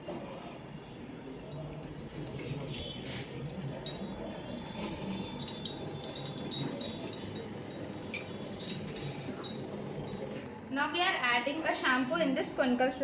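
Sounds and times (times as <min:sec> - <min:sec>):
steady background hum: 0:00.0 - 0:13.0
glassware clinking: 0:01.5 - 0:02.9, 0:03.5 - 0:10.5.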